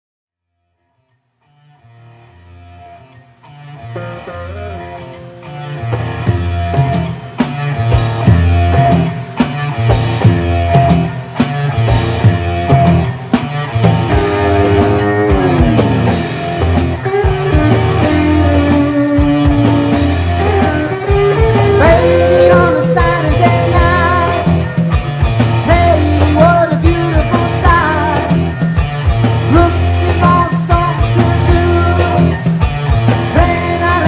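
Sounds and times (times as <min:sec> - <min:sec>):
rock band instrumental: 0:01.4 - 0:34.0
electric guitar sliding down: 0:01.5 - 0:34.0.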